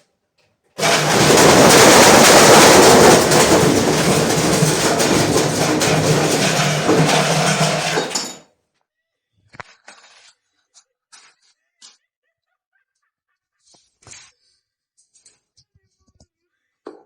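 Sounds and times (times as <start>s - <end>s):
brick clattering in washing machine: 0.8s - 8.4s
washing machine motor hum: 0.8s - 8.4s.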